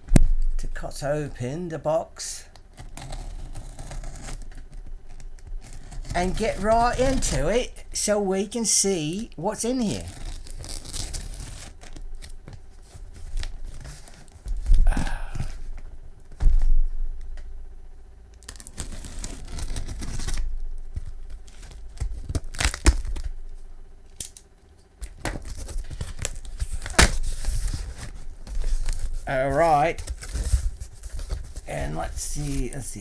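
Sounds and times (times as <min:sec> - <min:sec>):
packing tape tearing: 0:02.5 - 0:07.8, 0:09.7 - 0:15.4, 0:18.3 - 0:23.4, 0:24.1 - 0:32.9
packaging crinkling: 0:09.7 - 0:15.4, 0:18.4 - 0:23.4, 0:24.1 - 0:33.0.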